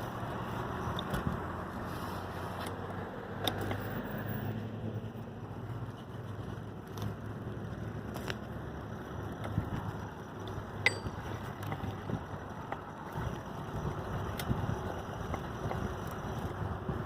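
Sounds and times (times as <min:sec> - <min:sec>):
road rumble: 0:00.0 - 0:17.0
wind: 0:00.0 - 0:17.0
tricycle clicks and rattles: 0:05.8 - 0:17.0.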